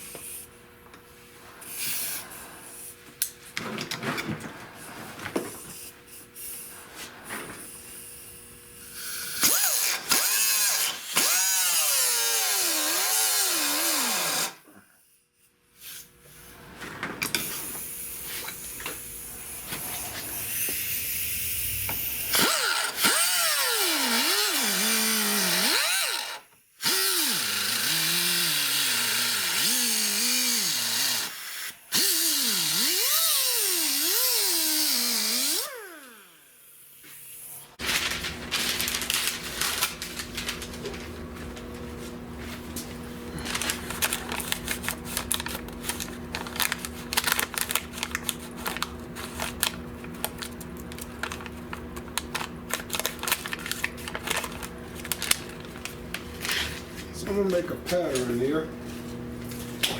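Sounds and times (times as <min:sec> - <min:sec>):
power tool cutting sheet metal: 0:09.0 - 0:14.6, 0:19.6 - 0:36.4.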